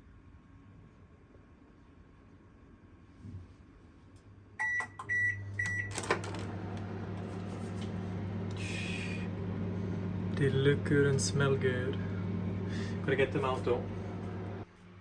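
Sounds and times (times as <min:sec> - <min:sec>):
low appliance hum: 0:00.4 - 0:15.0
microwave oven beeping: 0:04.6 - 0:14.6.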